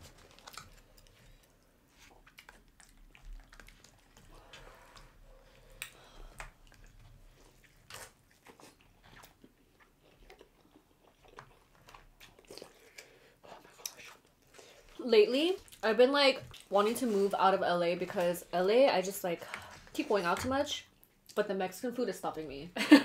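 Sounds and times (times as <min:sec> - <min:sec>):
close chewing and biting: 0:00.0 - 0:17.3.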